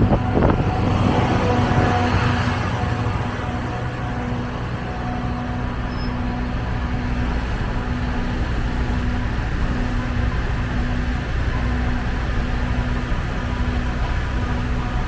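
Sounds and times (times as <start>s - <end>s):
road and traffic noise: 0.0s - 15.0s
motorcycle engine running: 6.2s - 15.0s.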